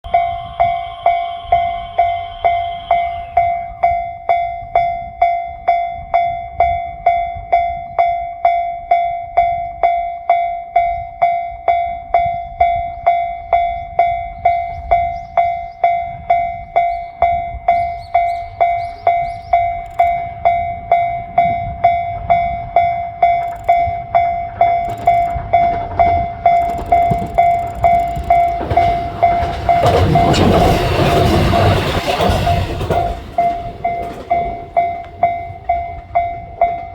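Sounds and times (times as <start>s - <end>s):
train passing: 0.0s - 5.1s, 14.1s - 36.9s
level crossing bell dinging: 17.5s - 36.9s.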